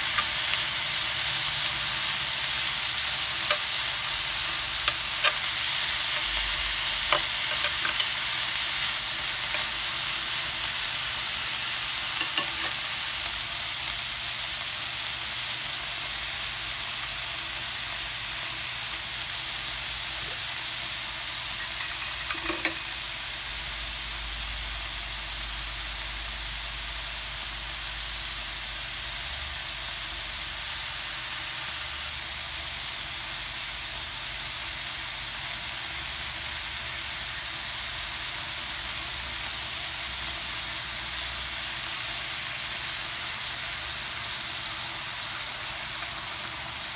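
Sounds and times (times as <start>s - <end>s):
food sizzling in a hot pan: 0.0s - 46.9s
tongs clicking against pan: 3.4s - 8.2s, 12.2s - 12.8s.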